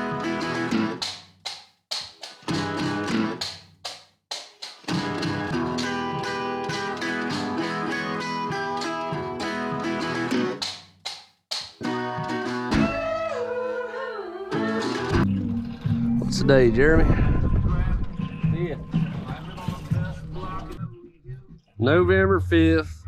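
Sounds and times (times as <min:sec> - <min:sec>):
strummed acoustic guitar: 0:00.0 - 0:01.2, 0:01.9 - 0:10.8, 0:11.8 - 0:13.8, 0:14.5 - 0:16.3.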